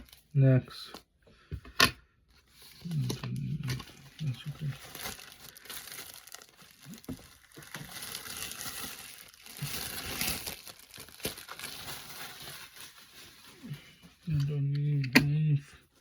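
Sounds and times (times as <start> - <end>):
plastic packaging crinkling: 2.6 - 14.4.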